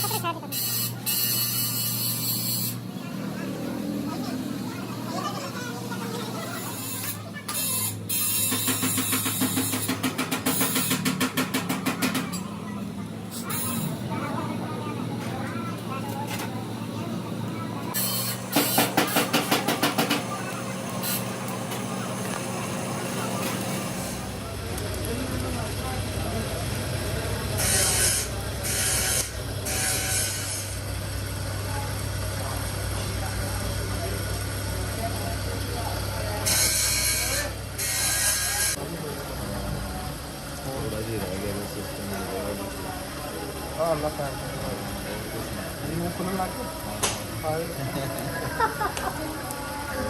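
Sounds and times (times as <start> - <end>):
harsh mechanical rasping: 0.0 - 2.9, 6.4 - 12.6, 17.9 - 24.4, 27.4 - 30.9, 36.4 - 38.8
engine running steadily: 0.0 - 50.0.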